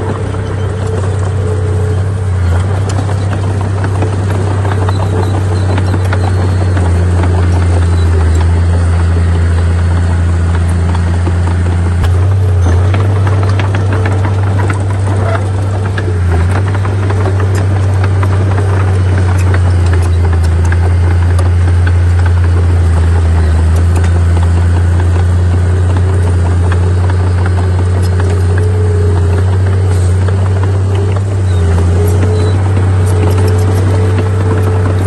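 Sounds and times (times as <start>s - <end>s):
heavy diesel engine droning: 0.0s - 35.0s.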